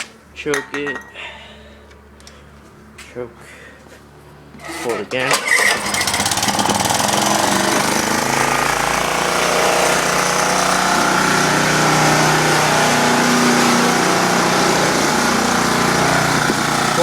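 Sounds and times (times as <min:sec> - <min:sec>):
small gasoline engine running: 0:05.3 - 0:17.0.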